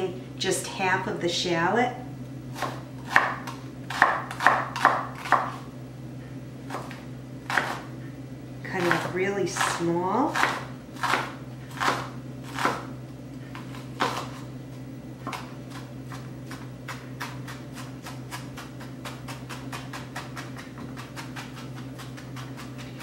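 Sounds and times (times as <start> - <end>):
knife chopping on cutting board: 2.6 - 5.6, 6.7 - 7.9, 8.8 - 12.9, 13.5 - 14.4, 15.2 - 23.0.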